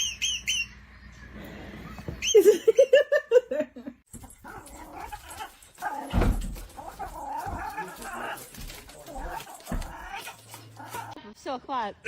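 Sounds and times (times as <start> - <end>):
dog vocalizing: 4.2 - 11.2
thud: 6.0 - 6.9.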